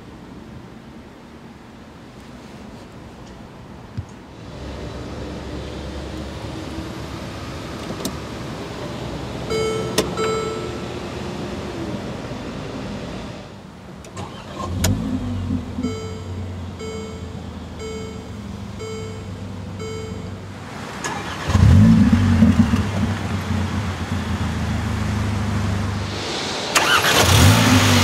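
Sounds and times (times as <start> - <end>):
car engine starting and idling: 4.4 - 28.0
warning chime beeping: 9.5 - 11.1, 15.8 - 20.5.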